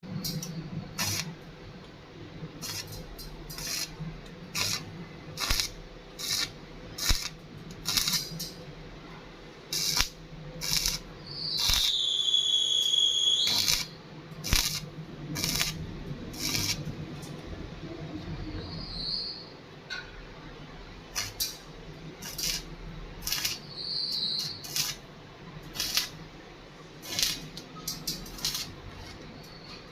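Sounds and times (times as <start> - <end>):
steady low hum: 0.0 - 12.1, 13.4 - 29.9
welding hissing bursts: 0.3 - 1.4, 2.6 - 8.5, 9.7 - 16.9, 21.1 - 21.6, 22.2 - 26.3, 27.0 - 29.6
high whistling tone: 11.2 - 13.9.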